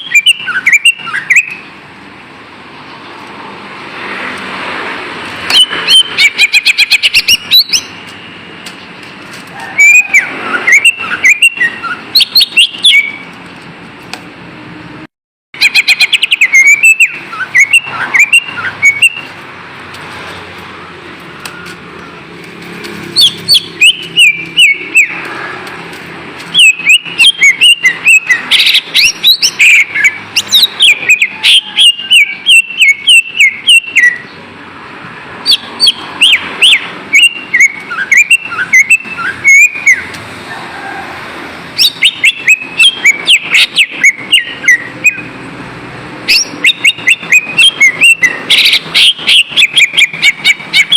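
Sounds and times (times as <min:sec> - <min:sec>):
bird singing whistled notes: 0:00.0 - 0:01.7, 0:05.5 - 0:08.0, 0:09.8 - 0:13.3, 0:15.6 - 0:19.3, 0:23.2 - 0:25.2, 0:26.5 - 0:34.4, 0:35.4 - 0:40.1, 0:41.8 - 0:45.3, 0:46.3 - 0:50.9.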